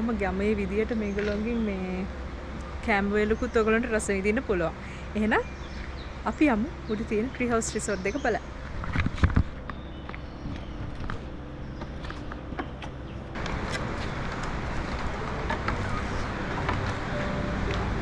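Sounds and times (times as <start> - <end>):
low rumbling noise: 0.0 - 18.0
footsteps on outdoor path: 8.0 - 18.0.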